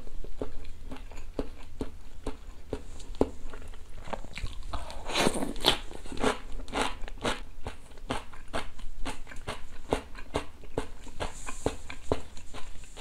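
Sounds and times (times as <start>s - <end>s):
chewing crisp pickle crunching: 0.0s - 13.0s.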